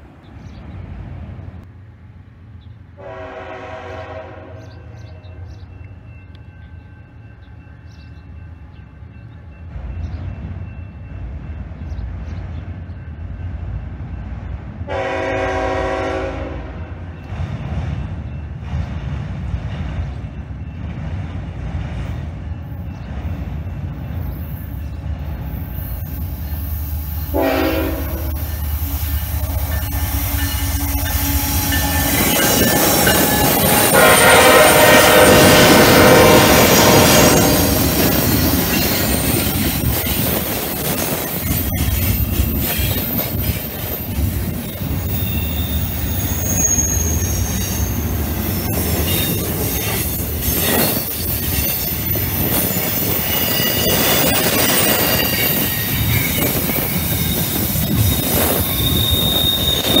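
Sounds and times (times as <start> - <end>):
diesel locomotives passing: 0.0 - 60.0
train cars rumbling: 0.0 - 60.0
train horn blast: 3.0 - 5.2, 14.8 - 17.0, 27.3 - 37.8
high wheel squeal: 28.3 - 60.0.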